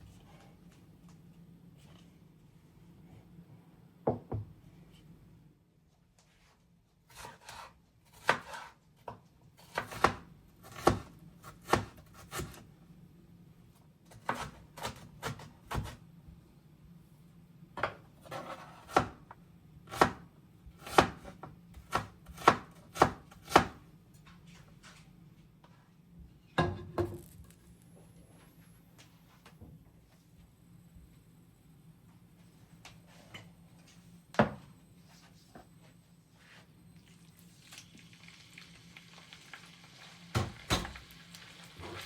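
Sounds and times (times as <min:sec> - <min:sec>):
knife chopping on cutting board: 0:09.6 - 0:12.6, 0:18.2 - 0:19.2, 0:19.9 - 0:23.8.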